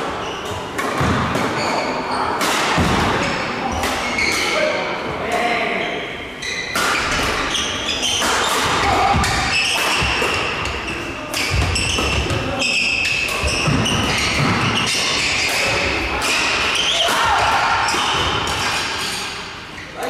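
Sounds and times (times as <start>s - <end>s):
court shoes squeaking on floor: 0.0s - 2.4s, 3.2s - 4.6s, 5.9s - 20.0s
rackets hitting shuttlecock: 2.4s - 4.4s, 6.7s - 19.5s.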